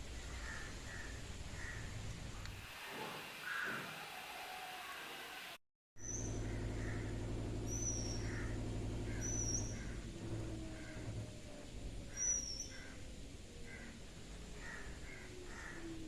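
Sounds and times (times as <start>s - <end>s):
steady low hum: 0.0s - 2.6s, 6.0s - 15.8s
birds whistling: 6.0s - 11.2s, 12.1s - 15.9s.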